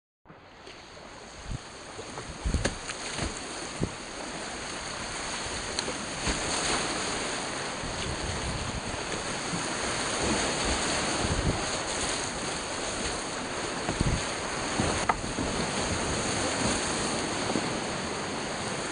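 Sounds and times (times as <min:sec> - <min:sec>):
rushing creek whitewater: 0:00.9 - 0:18.9.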